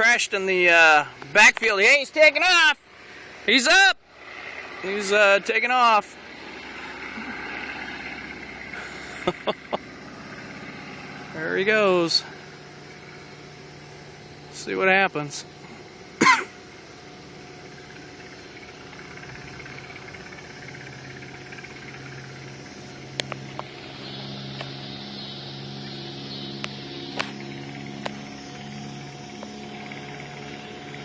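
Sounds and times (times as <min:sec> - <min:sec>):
distant propeller plane engine droning: 0:00.0 - 0:31.0.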